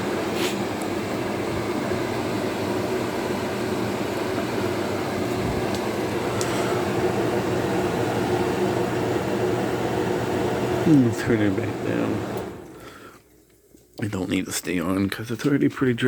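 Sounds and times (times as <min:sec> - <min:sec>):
fan air rushing: 0:00.0 - 0:13.3
dehumidifier compressor hum: 0:00.0 - 0:16.0.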